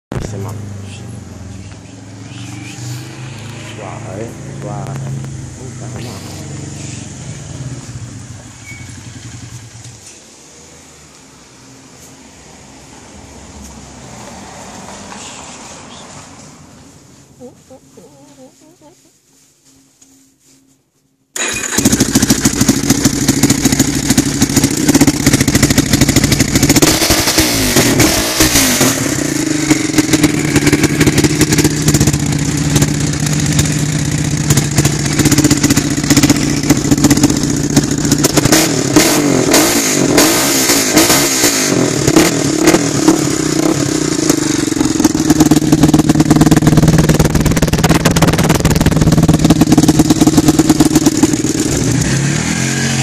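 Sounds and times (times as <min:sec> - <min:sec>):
atv engine revving: 0:00.3 - 0:10.0, 0:21.4 - 0:53.0.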